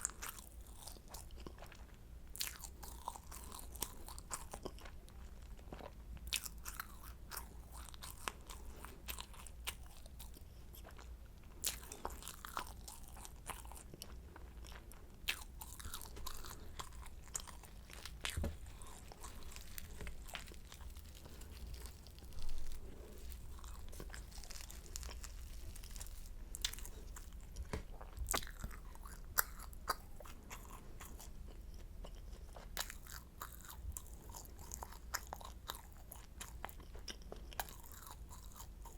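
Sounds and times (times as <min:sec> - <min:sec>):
pastry crunching while chewed: 0:00.0 - 0:38.9.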